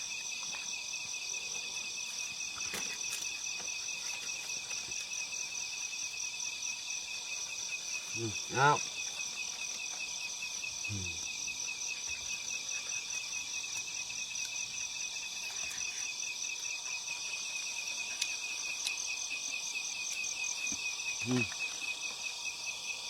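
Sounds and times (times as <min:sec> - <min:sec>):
insects trilling: 0:00.0 - 0:23.0
short low human voice: 0:10.9 - 0:11.2.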